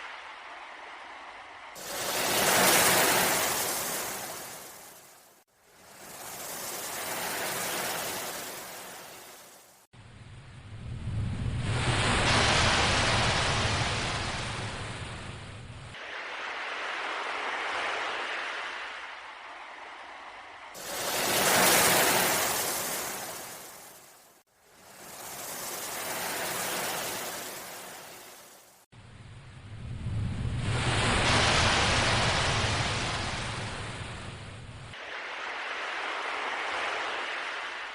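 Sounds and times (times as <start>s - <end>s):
sea waves washing in: 0.0s - 37.9s
deep rumble: 10.2s - 12.2s, 29.1s - 32.8s.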